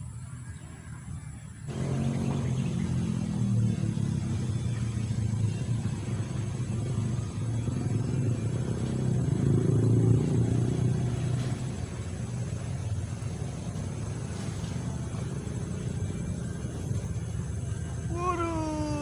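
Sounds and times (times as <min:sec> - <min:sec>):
engine rumbling: 0:00.0 - 0:19.0.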